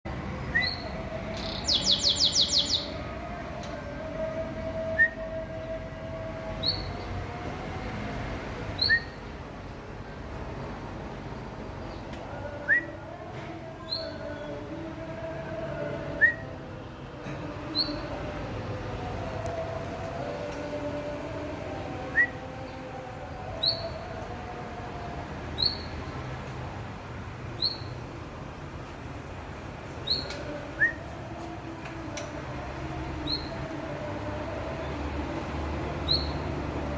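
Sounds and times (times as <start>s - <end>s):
songbird chirps: 0.4s - 3.9s, 8.7s - 9.3s, 13.7s - 14.9s, 22.0s - 24.3s, 25.5s - 26.4s, 27.4s - 28.1s, 29.8s - 32.4s, 33.2s - 33.6s
songbird trill: 0.5s - 3.0s, 30.0s - 31.1s.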